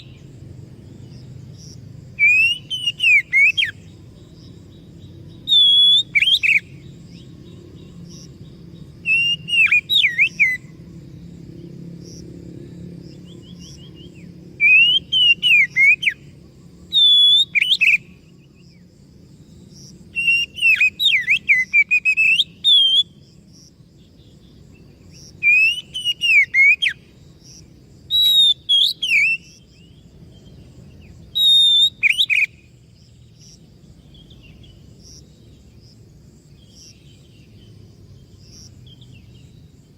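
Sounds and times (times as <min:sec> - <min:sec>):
bird whistled song: 0:00.0 - 0:00.3, 0:02.1 - 0:10.8, 0:13.1 - 0:18.8, 0:19.5 - 0:23.4, 0:24.2 - 0:32.8.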